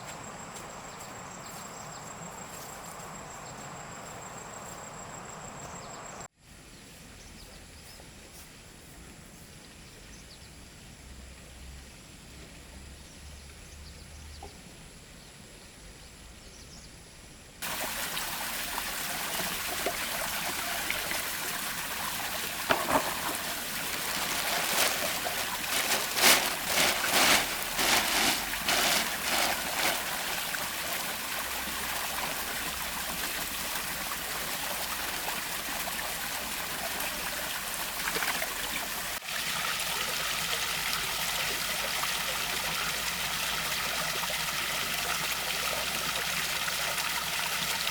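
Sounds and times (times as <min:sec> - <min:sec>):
waterfall splashing into pond: 0:17.6 - 0:47.9.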